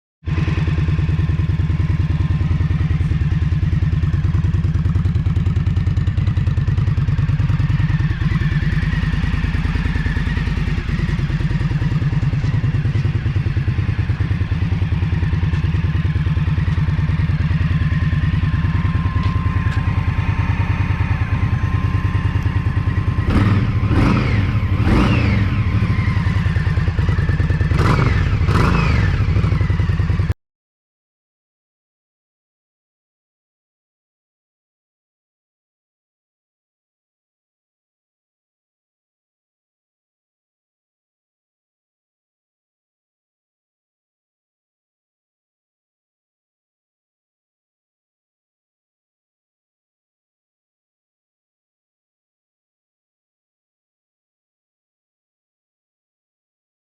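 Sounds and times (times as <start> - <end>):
motorcycle engine idling: 0.3 - 30.3
motorcycle engine revving: 0.3 - 30.3.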